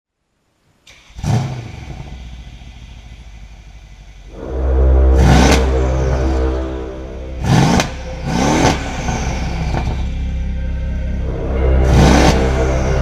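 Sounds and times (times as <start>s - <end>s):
car engine running: 5.0s - 13.0s.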